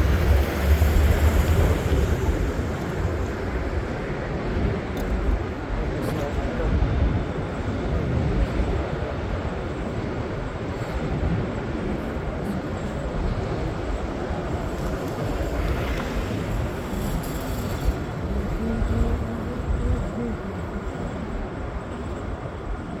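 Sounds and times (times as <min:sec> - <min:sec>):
train rumbling on rails: 0:00.0 - 0:23.0.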